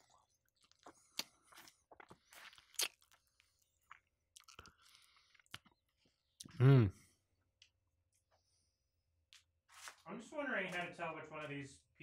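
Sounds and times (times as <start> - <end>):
crunching crispy fried chicken: 0.0 - 5.8.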